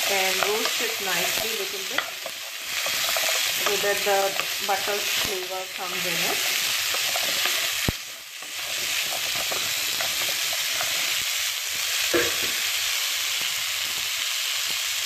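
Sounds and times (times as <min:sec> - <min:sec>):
vegetables sizzling in butter: 0:00.0 - 0:15.0
utensil clicking on pan: 0:00.1 - 0:11.3.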